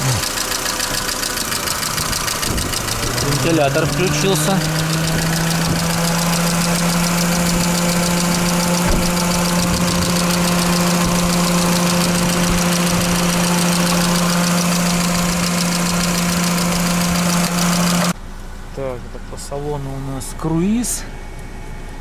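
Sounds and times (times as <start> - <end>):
car engine idling: 0.0 - 22.0
radiator fan whirring: 1.1 - 18.2.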